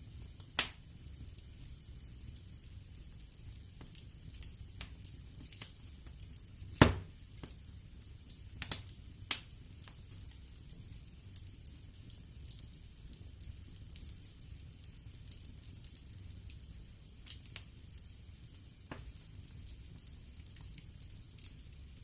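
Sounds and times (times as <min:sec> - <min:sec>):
low rumble of flames: 0:00.0 - 0:22.0
wood fire crackling: 0:00.0 - 0:22.0
sharp pops of fire: 0:00.4 - 0:00.8, 0:03.7 - 0:07.7, 0:08.6 - 0:10.3, 0:18.7 - 0:19.2.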